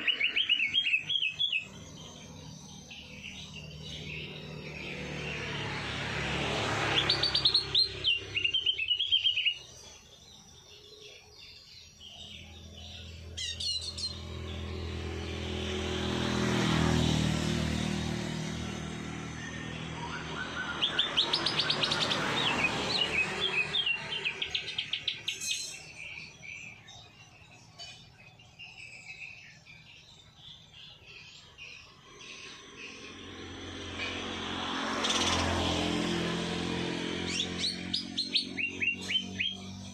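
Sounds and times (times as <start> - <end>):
songbirds trilling: 0.0 - 39.9
low engine drone: 12.2 - 39.9.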